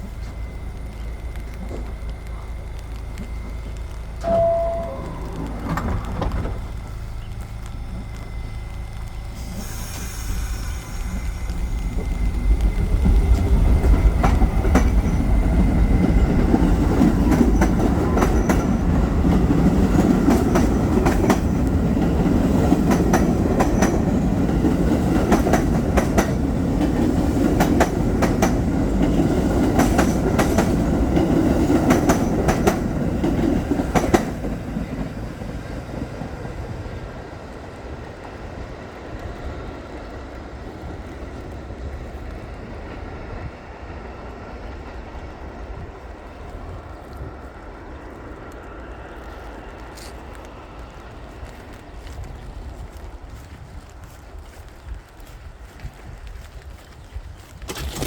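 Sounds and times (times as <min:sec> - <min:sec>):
wheels clacking over rail joints: 0:00.0 - 0:43.2, 0:56.4 - 0:58.0
train rumbling on rails: 0:00.0 - 0:58.0.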